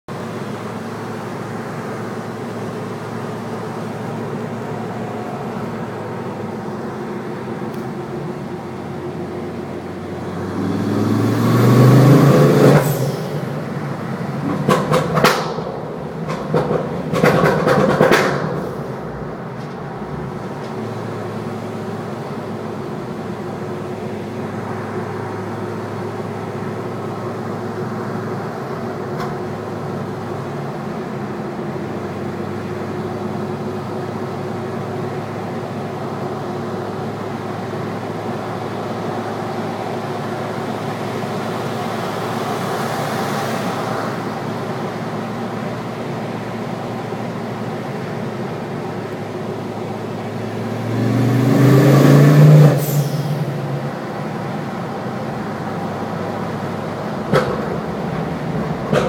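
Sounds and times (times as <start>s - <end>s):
car engine and exhaust droning: 0.1s - 59.0s.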